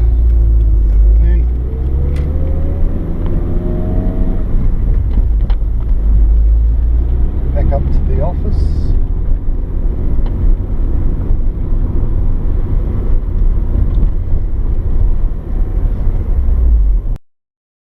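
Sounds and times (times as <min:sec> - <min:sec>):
car engine and road noise: 0:00.0 - 0:17.2.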